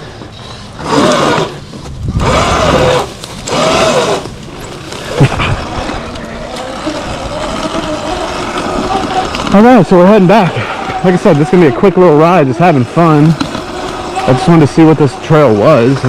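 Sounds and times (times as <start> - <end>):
electric motor whine: 0.0 - 16.0
wind and tyre rush: 0.0 - 16.0.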